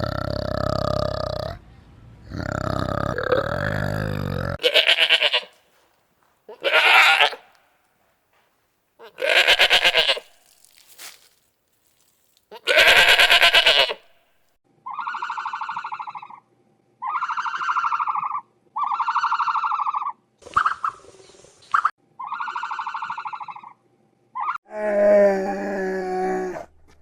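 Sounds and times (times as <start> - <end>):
animal wavering cries: 14.8 - 16.4, 17.0 - 20.8, 22.2 - 23.8, 24.4 - 26.7
buzzy animal calls: 14.8 - 16.4, 17.0 - 21.0, 21.8 - 23.8.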